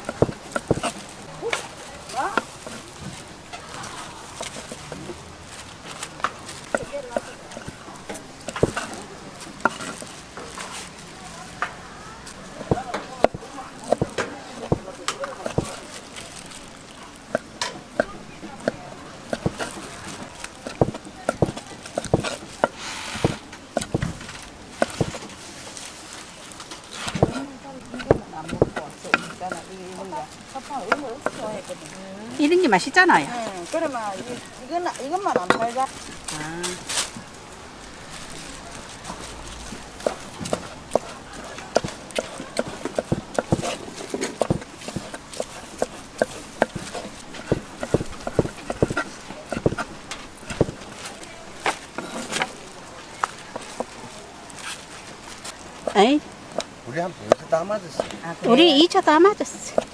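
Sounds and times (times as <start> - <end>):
knife chopping on cutting board: 17.3 - 19.9, 20.6 - 24.1, 28.0 - 29.6, 39.7 - 51.0.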